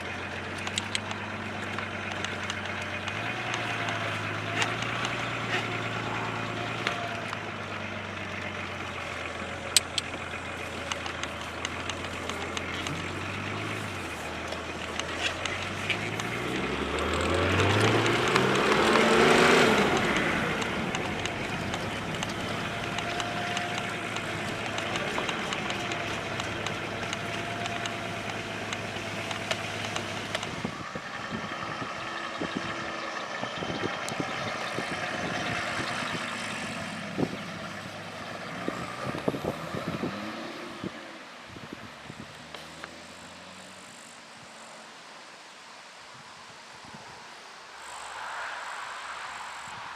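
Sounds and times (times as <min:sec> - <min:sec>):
scattered clicks: 0:00.0 - 0:06.0, 0:09.0 - 0:30.7
diesel car engine revving: 0:00.0 - 0:45.0.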